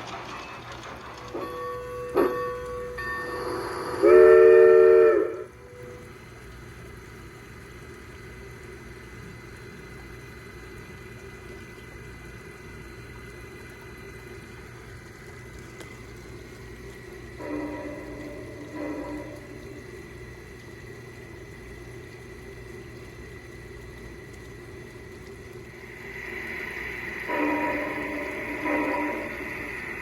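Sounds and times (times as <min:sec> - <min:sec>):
model train running noise: 0:00.0 - 0:30.0
model train steam whistle: 0:01.3 - 0:06.1, 0:17.4 - 0:20.0, 0:25.9 - 0:30.0.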